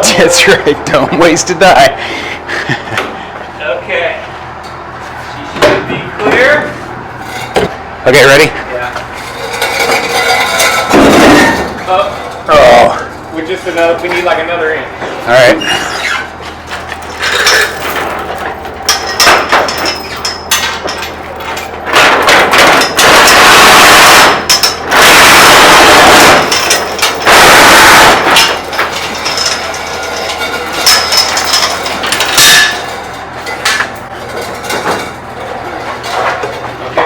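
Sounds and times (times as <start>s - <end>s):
metal knocking and clanking: 9.0s - 12.5s, 16.8s - 23.1s
loud harsh noise bursts: 22.0s - 28.6s.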